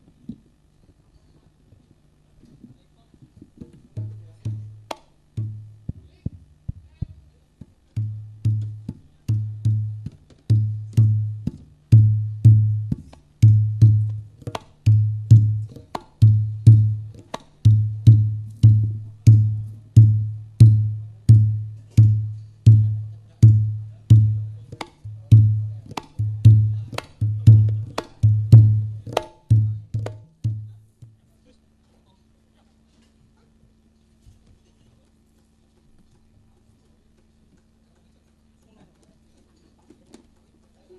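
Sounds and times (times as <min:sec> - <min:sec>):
percussion music over loudspeakers: 0:07.9 - 0:30.8.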